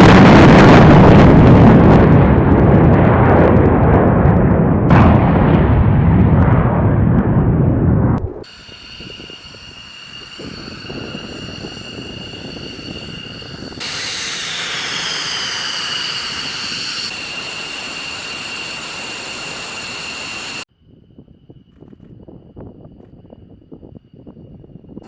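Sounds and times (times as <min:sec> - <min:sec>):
jet engine rushing with high whine: 0:08.2 - 0:20.7.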